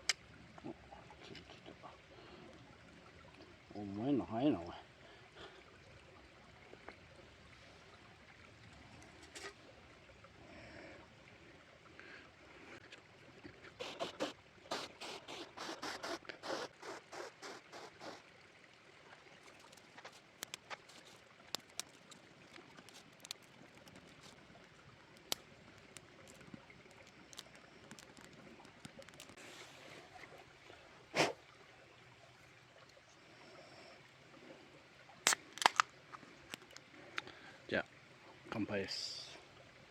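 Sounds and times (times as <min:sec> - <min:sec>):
campfire crackling: 0:13.6 - 0:18.3, 0:19.4 - 0:29.8, 0:35.2 - 0:37.6.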